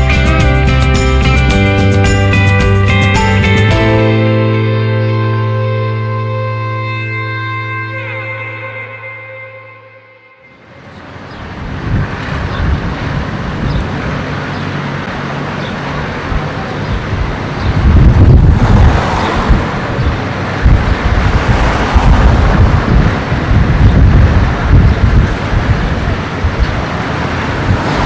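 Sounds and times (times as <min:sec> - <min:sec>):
tractors rumbling past: 0:10.6 - 0:28.0
wind buffeting microphone: 0:11.2 - 0:28.0.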